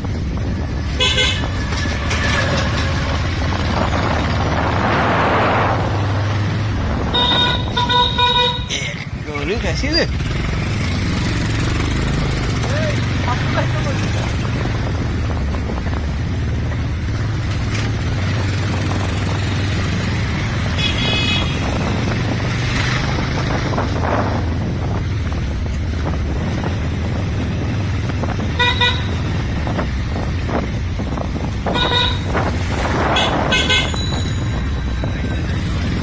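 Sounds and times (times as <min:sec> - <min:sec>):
wind on microphone: 0:00.0 - 0:08.7, 0:11.0 - 0:36.0
motorcycle engine running: 0:00.0 - 0:36.0
vehicle horn honks: 0:01.0 - 0:01.6, 0:07.1 - 0:08.8, 0:20.7 - 0:21.7, 0:28.5 - 0:29.2, 0:31.6 - 0:32.4, 0:33.0 - 0:34.2.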